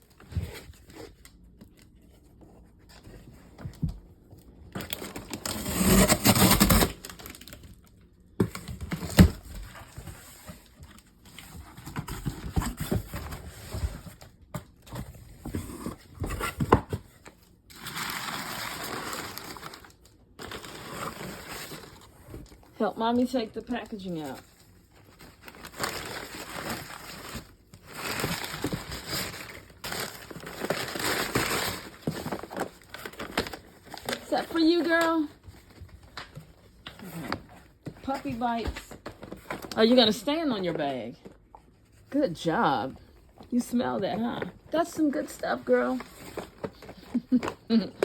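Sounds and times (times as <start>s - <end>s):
cardboard box being torn open: 4.8s - 7.6s, 17.7s - 22.2s, 25.4s - 34.5s.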